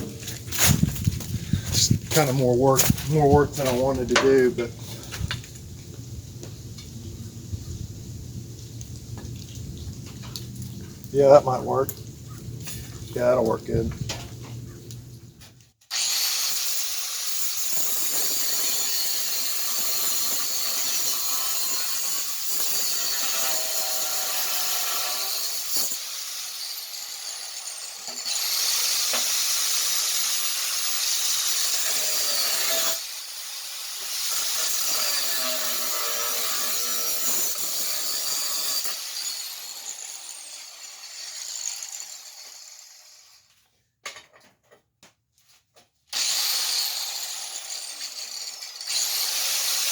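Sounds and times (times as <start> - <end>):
angle grinder cutting steel: 15.9 - 43.5, 46.1 - 49.9.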